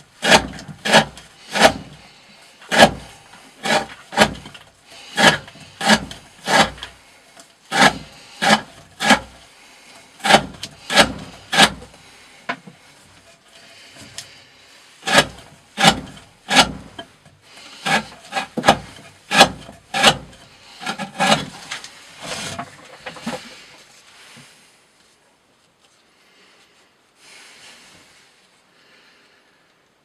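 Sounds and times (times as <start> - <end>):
knife cutting through rope: 0.2 - 7.0, 7.7 - 9.4, 10.2 - 12.0, 15.0 - 23.6.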